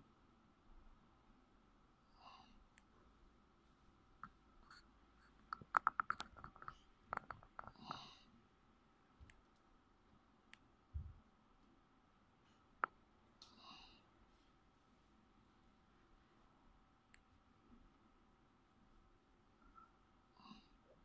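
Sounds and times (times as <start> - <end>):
faint clicks and taps: 2.7 - 8.2, 9.1 - 9.7, 12.4 - 13.6.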